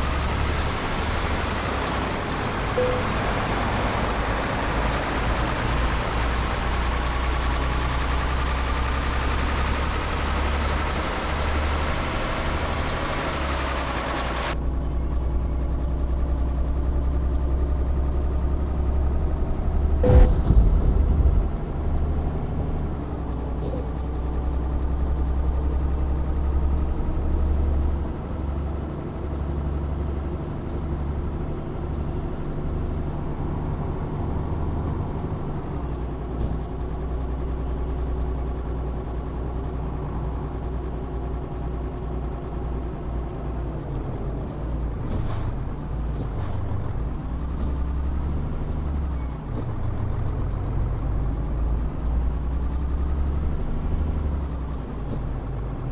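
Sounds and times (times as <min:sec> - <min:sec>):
truck engine running: 0:00.0 - 0:55.9
air brake hisses: 0:44.5 - 0:46.8.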